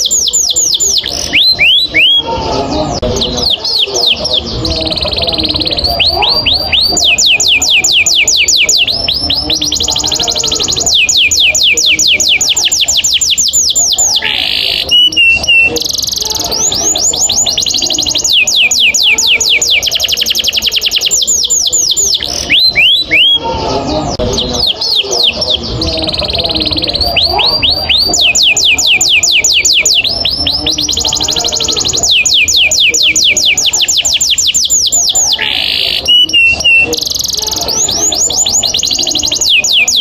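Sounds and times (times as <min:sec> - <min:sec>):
canary singing: 0:00.0 - 0:40.0.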